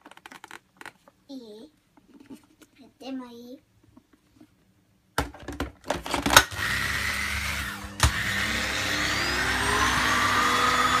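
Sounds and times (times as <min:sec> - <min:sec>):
vacuum cleaner motor whining: 0:06.1 - 0:11.0.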